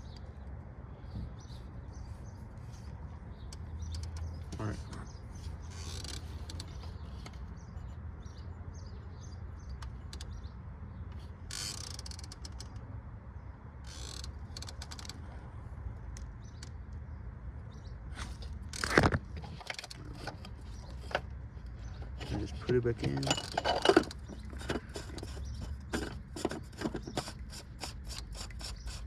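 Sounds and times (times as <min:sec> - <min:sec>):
parts clicking and scraping: 0:02.2 - 0:07.7, 0:18.1 - 0:29.0.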